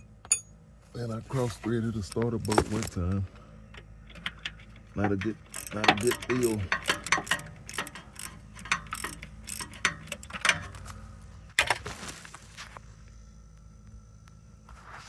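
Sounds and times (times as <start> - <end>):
socket ratchet clicking: 4.1 - 10.7.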